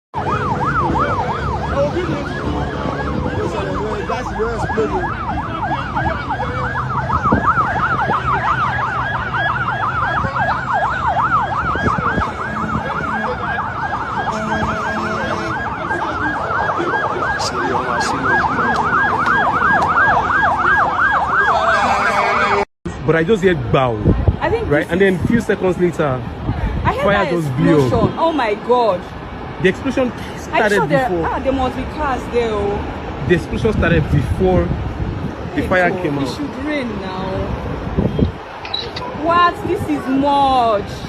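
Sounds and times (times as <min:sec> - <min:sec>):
siren yelping: 0:00.2 - 0:22.6, 0:30.5 - 0:31.1.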